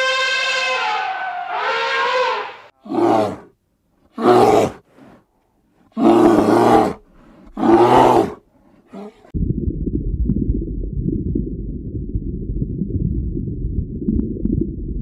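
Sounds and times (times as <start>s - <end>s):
animal calling in rough calls: 0.0s - 3.5s, 5.9s - 9.3s.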